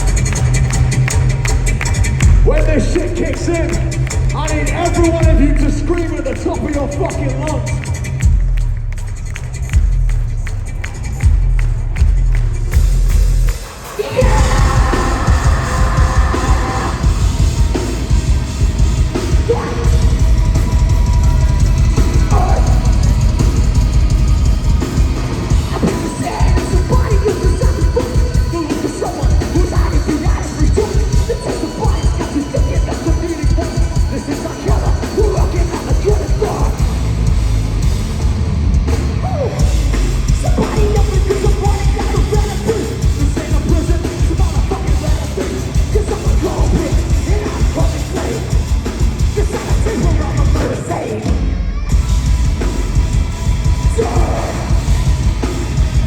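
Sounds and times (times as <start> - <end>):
metal band playing live: 0.0 - 8.5, 9.4 - 56.0
heavy distorted guitars: 0.0 - 56.0
pounding drums: 0.0 - 56.0
person yelling vocals: 14.0 - 17.1.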